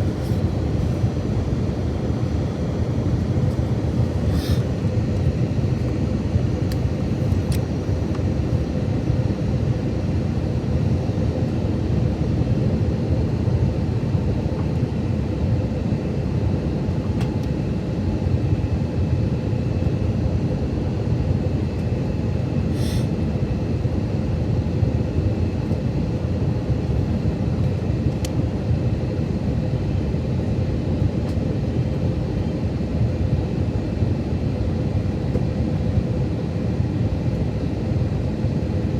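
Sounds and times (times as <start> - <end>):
aircraft cabin engine rush: 0.0 - 38.9.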